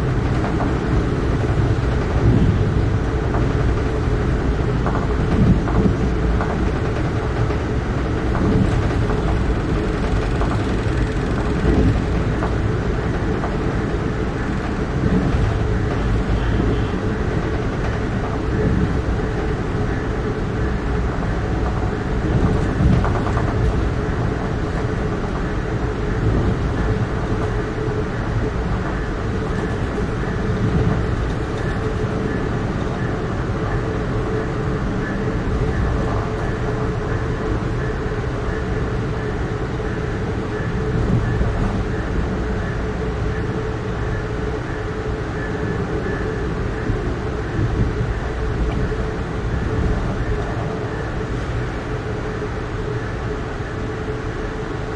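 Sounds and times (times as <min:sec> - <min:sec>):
train wheels rumbling on rails: 0:00.0 - 0:54.9.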